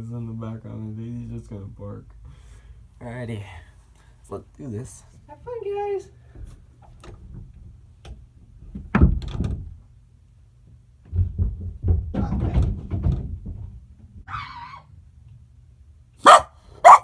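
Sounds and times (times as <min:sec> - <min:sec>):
door thudding shut: 0:08.9 - 0:09.7.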